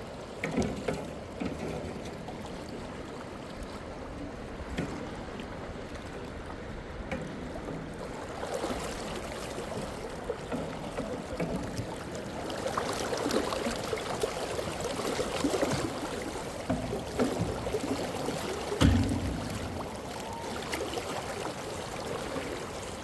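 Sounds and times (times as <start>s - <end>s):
river water splashing: 0.0s - 23.0s
loud knock: 18.8s - 20.7s.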